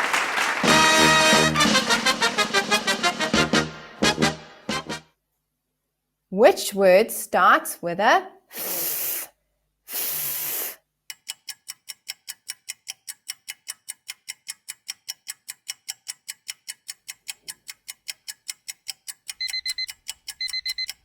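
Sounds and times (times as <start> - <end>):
clock ticking: 11.0 - 21.0
alarm clock beeping: 19.3 - 21.0.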